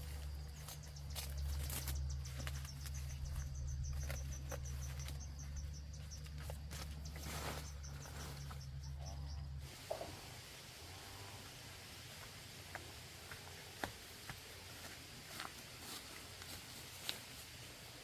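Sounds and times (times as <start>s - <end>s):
crackling and rustling: 0.0s - 8.8s
insect chirping: 0.0s - 11.4s
low hum: 0.0s - 11.5s.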